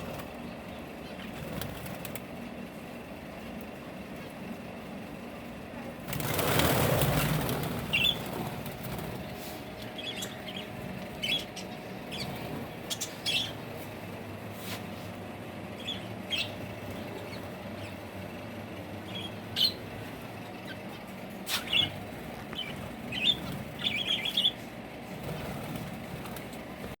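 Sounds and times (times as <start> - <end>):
birds flapping wings: 0.0 - 4.8, 5.5 - 13.1, 21.3 - 27.0
high bird chirps: 20.6 - 24.7.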